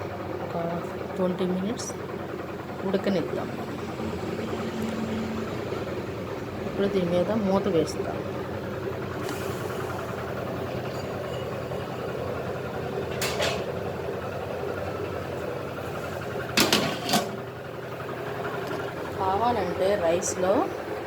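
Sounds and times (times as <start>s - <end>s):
steady low hum: 0.0s - 21.0s
metal pot lid clanking: 13.1s - 13.8s, 16.6s - 17.4s.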